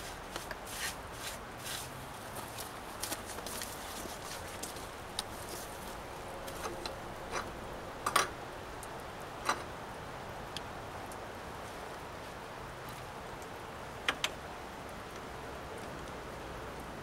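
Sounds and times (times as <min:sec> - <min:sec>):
rain hissing: 0:00.0 - 0:17.0
sharp clicks and knocks: 0:06.5 - 0:08.4.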